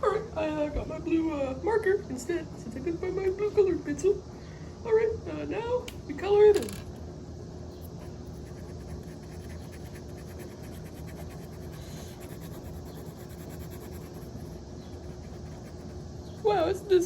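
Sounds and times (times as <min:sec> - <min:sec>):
marker scribbling on paper: 0:08.3 - 0:16.6.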